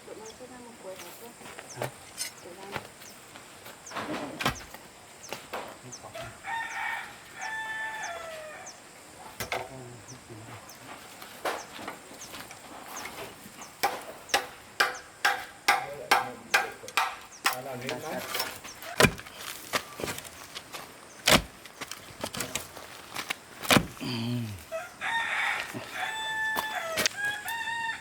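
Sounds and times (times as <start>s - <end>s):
rooster crowing: 6.0s - 9.0s, 24.6s - 28.0s
sharp knocks: 13.8s - 19.4s, 23.6s - 24.0s.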